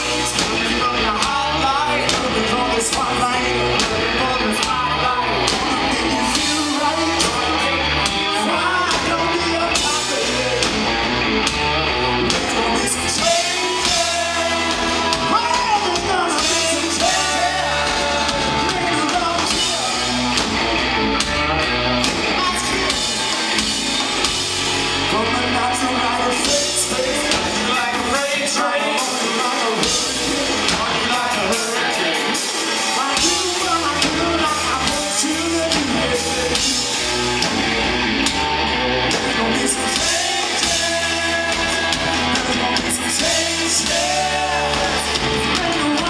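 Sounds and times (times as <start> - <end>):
live rock band playing: 0.0 - 46.0
person singing: 12.3 - 20.4, 25.0 - 37.2, 39.0 - 46.0.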